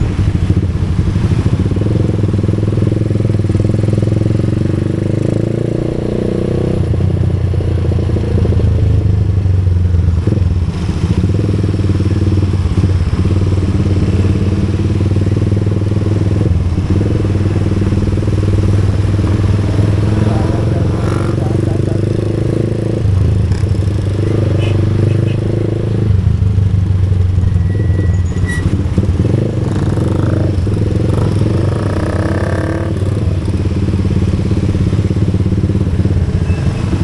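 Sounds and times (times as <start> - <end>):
vehicle engine running: 6.8 - 37.0.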